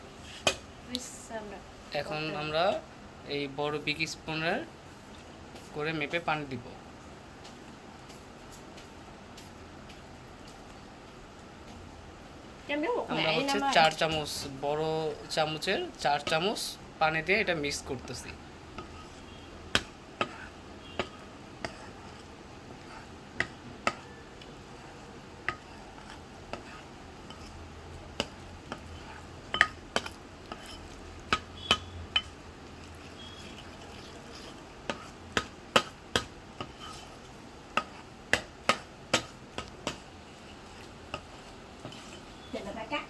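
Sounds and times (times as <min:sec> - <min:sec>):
spoon clinking against a bowl: 0:29.5 - 0:32.4, 0:33.0 - 0:35.1.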